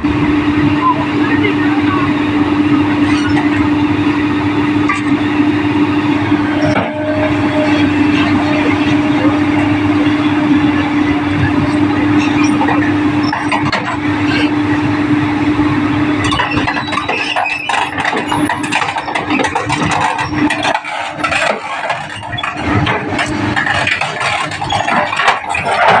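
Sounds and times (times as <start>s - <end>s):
diesel engine humming: 0.0s - 26.0s
metal clanking and rattling: 6.2s - 14.8s, 16.2s - 26.0s.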